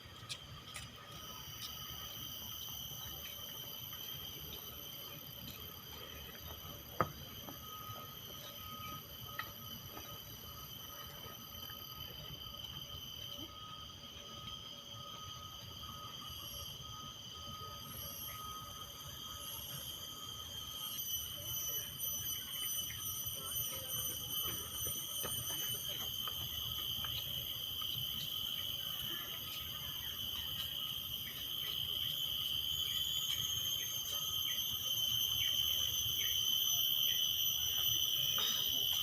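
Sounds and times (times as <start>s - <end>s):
short insect chirps: 0.0s - 39.0s
insects shrilling: 14.8s - 39.0s.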